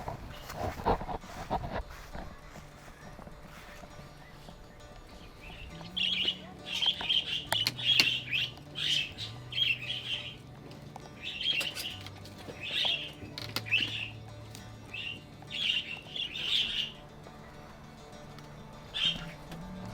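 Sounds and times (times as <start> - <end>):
budgerigars chirping and squawking: 2.8 - 10.4, 11.1 - 14.2, 14.9 - 17.1, 18.9 - 19.4.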